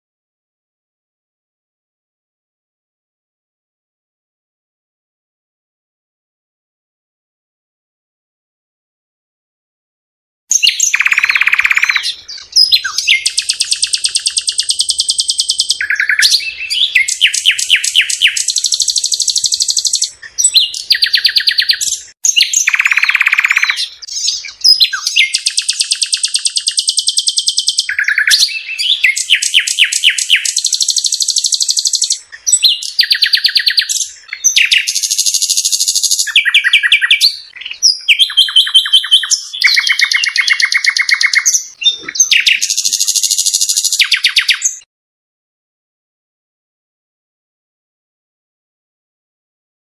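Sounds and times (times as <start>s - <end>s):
songbird trilling: 10.5s - 44.8s.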